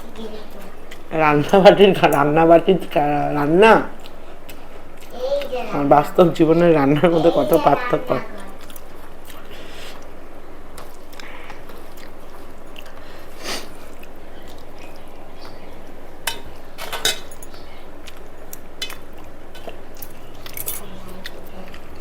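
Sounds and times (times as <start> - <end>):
steady background hiss: 0.0 - 22.0
dishes clinking: 14.6 - 22.0.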